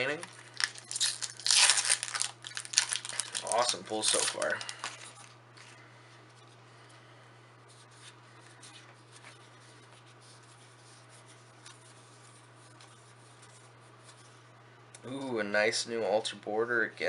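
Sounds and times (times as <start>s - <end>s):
steady low hum: 0.0s - 17.0s
cards rustling and clicking: 0.2s - 5.3s.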